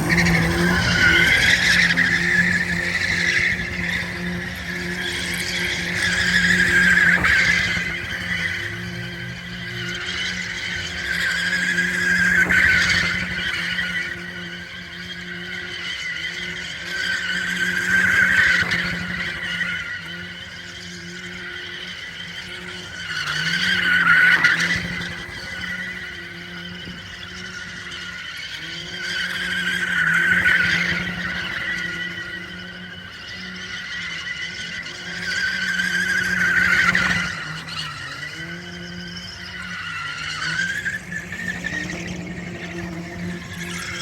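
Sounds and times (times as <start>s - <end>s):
car engine revving high: 0.0s - 44.0s.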